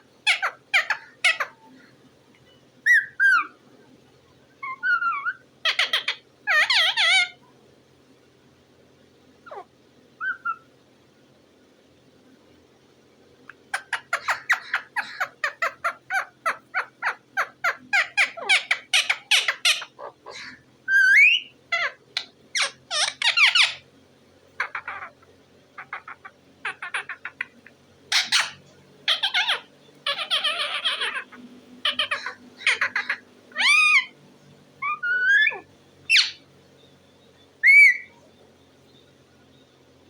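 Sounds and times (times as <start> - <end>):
parrot calling: 0.0 - 1.9, 2.8 - 3.6, 4.6 - 7.4, 9.4 - 10.7, 13.5 - 23.9, 24.6 - 34.2, 34.8 - 36.5, 37.6 - 38.3.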